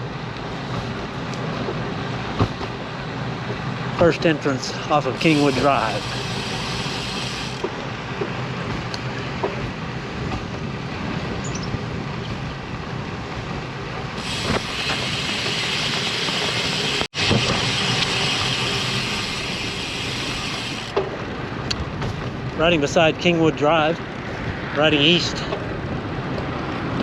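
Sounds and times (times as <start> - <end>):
wind rushing over microphone: 7.6 - 27.0.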